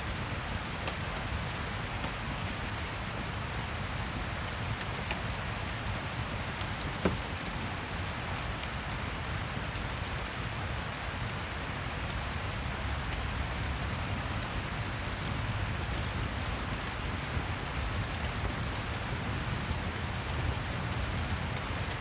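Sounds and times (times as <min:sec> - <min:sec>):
fireplace crackles: 0:00.0 - 0:01.5, 0:13.1 - 0:22.0
steady rain: 0:00.0 - 0:22.0.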